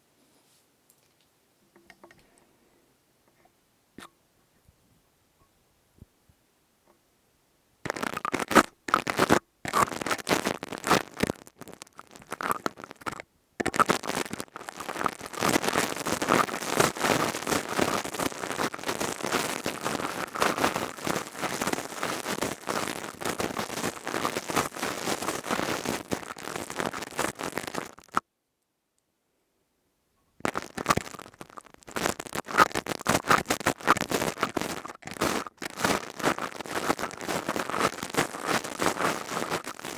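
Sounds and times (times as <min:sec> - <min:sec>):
crystal tube scraped and rubbed: 0:07.9 - 0:28.2, 0:30.5 - 0:39.9.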